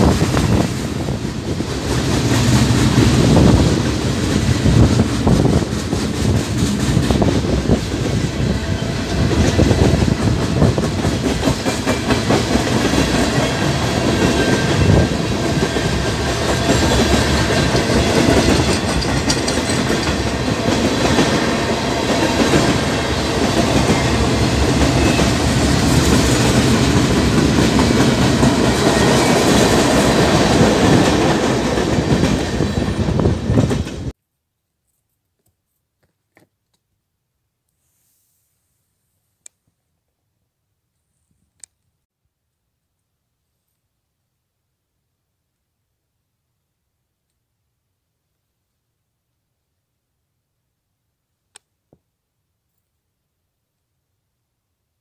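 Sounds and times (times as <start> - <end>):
train wheels clattering on rails: 0.0 - 34.1.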